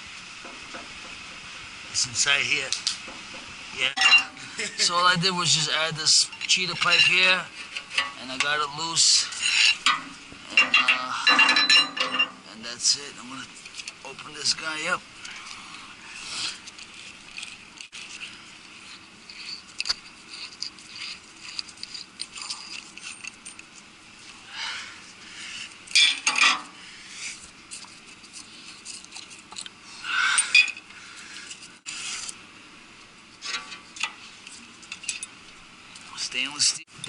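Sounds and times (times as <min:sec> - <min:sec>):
metal tools clinking and scraping: 0:03.9 - 0:04.9, 0:05.5 - 0:13.0, 0:16.6 - 0:23.8, 0:25.9 - 0:26.8, 0:30.3 - 0:32.4, 0:33.3 - 0:35.4.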